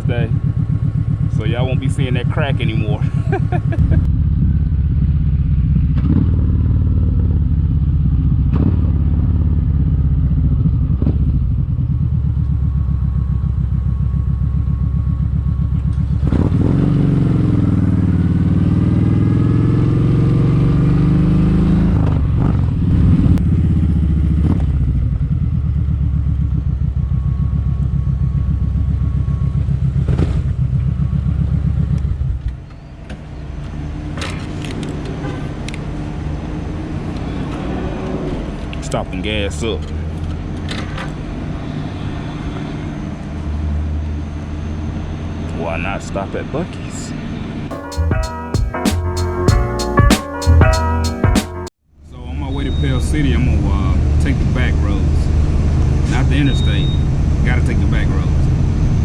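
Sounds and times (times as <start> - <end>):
motorcycle engine running: 0.0 - 32.6.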